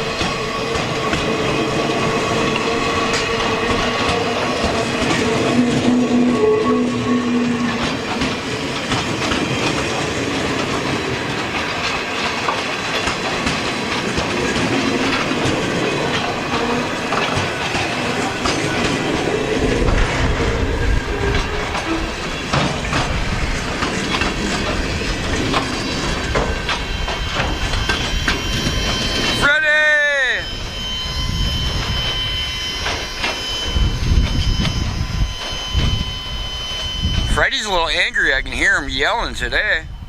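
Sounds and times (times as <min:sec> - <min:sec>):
train wheels clicking over rail joints: 0:00.0 - 0:29.5, 0:31.7 - 0:36.4
deep train rumble: 0:00.0 - 0:40.0
faint wheel squeal: 0:03.1 - 0:08.9.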